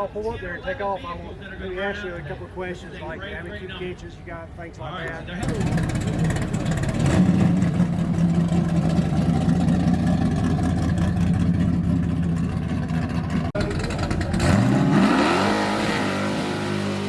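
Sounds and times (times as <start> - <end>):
car engine revving: 5.4 - 17.0.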